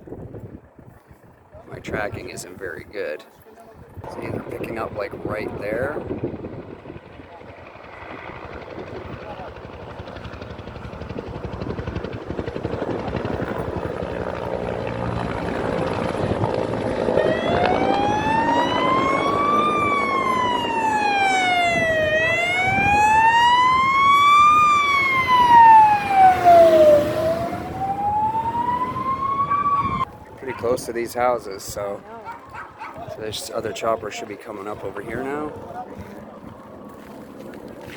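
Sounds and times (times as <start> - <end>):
helicopter rotor beating: 3.9 - 37.9
siren wailing: 15.3 - 30.8.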